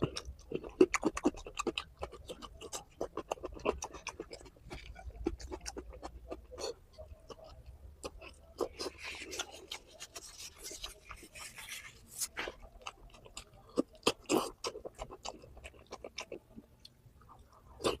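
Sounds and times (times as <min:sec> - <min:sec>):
wet chewing and lip smacking: 0:00.0 - 0:18.0.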